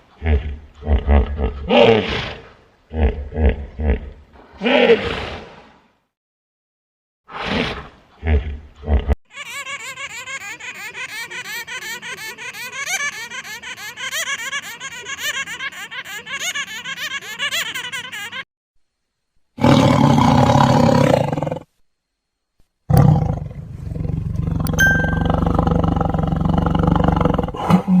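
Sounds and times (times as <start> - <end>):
high-pitched animal chattering: 9.3 - 18.4, 24.7 - 26.2
lion roaring: 19.6 - 21.7, 22.9 - 28.0.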